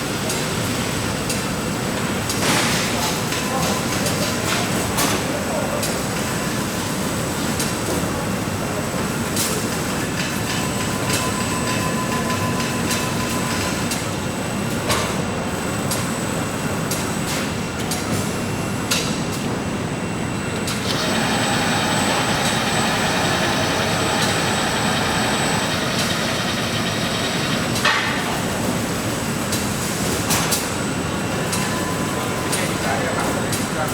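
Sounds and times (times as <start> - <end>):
factory machinery noise: 0.0 - 33.9
machine high whine: 20.2 - 29.8.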